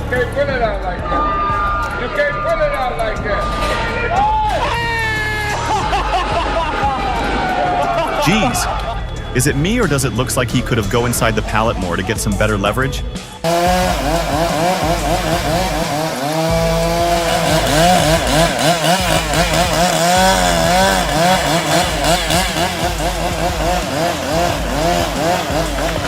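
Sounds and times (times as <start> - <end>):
chainsaw cutting at high revs: 13.4 - 26.0.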